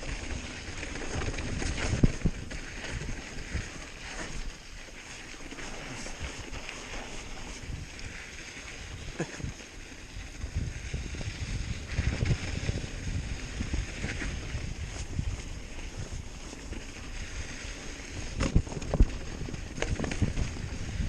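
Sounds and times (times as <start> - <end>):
wind buffeting microphone: 0.0 - 4.4, 5.9 - 21.0
low rumble of bike tyres: 0.0 - 21.0.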